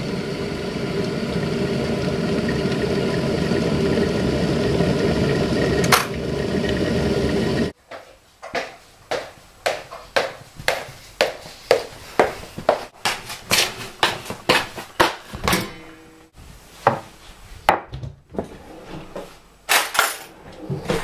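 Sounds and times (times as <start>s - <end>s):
electric kettle rumbling hiss: 0.0s - 7.8s.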